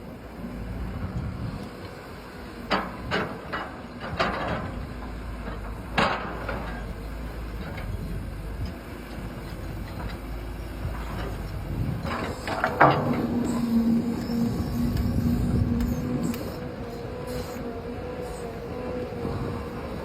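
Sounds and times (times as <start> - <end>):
small electric motors humming: 9.4 - 20.0.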